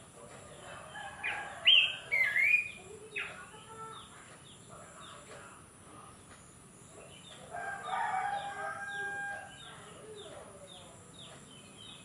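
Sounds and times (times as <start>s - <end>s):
bird singing whistled notes: 1.3s - 3.4s.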